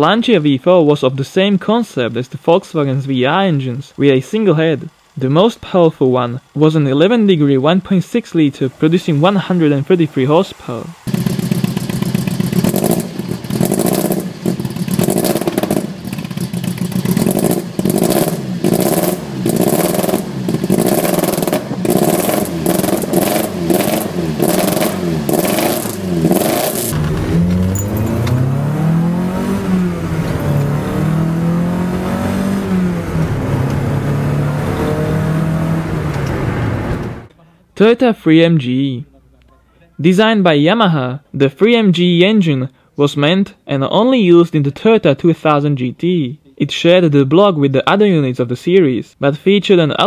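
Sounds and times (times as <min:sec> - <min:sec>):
sharp exhaust cracks: 0:10.6 - 0:34.6
engine revving in blips: 0:10.9 - 0:37.3
car accelerating through gears: 0:11.0 - 0:37.3.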